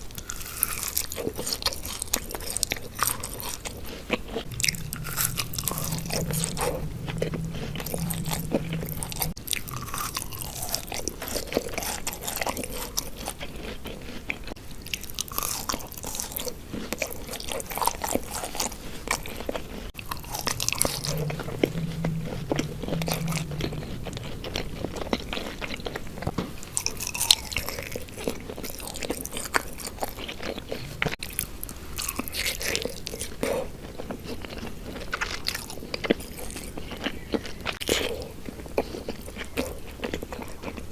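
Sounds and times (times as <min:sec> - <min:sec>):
chewing: 0:00.1 - 0:40.9.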